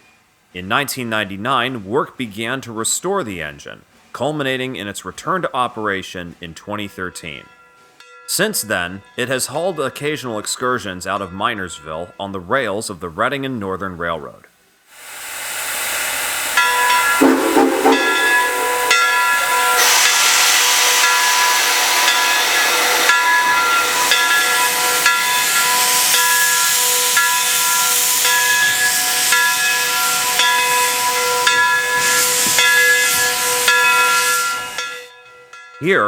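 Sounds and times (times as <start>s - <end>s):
hissing steam: 14.9s - 34.9s
steam locomotive whistle: 15.0s - 34.9s.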